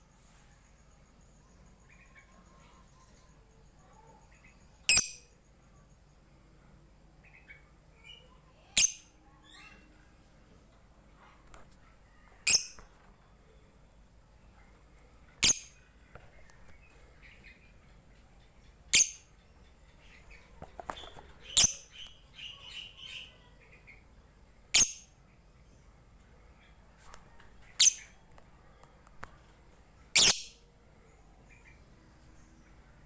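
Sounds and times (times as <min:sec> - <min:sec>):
bird shrill high-pitched calls: 0:12.5 - 0:12.8
bird twittering chirps: 0:18.4 - 0:24.0.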